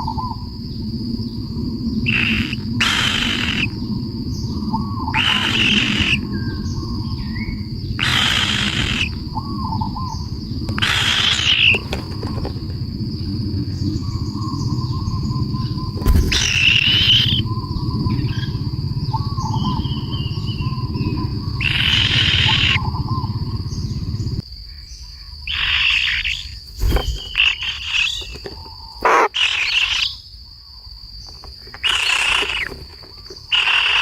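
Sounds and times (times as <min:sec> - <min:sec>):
high insect drone: 0:00.0 - 0:34.0
harsh rasping bird calls: 0:02.0 - 0:12.9, 0:14.9 - 0:24.4, 0:25.2 - 0:30.3, 0:31.2 - 0:34.0
low rumble: 0:12.6 - 0:24.4
whistled bird chirps: 0:13.8 - 0:30.2.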